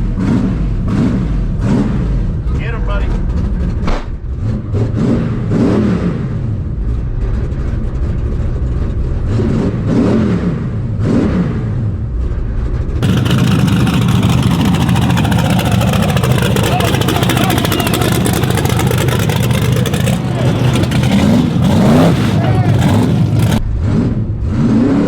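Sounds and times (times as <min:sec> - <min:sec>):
truck engines revving: 0:00.0 - 0:25.0
rough pulsing engine nearby: 0:11.8 - 0:25.0.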